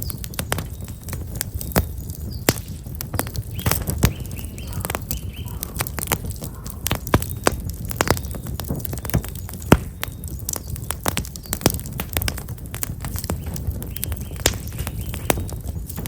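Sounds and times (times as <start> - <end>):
campfire crackling and popping: 0.0 - 16.0
small bird chirping: 3.1 - 11.9, 13.2 - 15.6.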